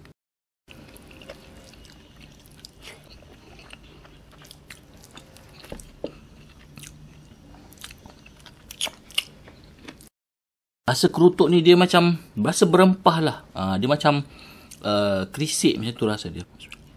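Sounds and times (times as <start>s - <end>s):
close-up chewing with mouth clicks: 0.7s - 10.1s.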